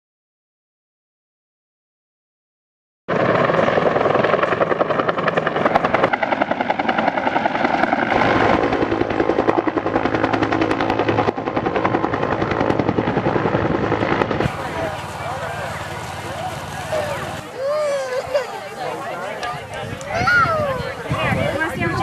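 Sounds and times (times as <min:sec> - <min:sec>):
helicopter rotor chopping: 0:03.1 - 0:22.0.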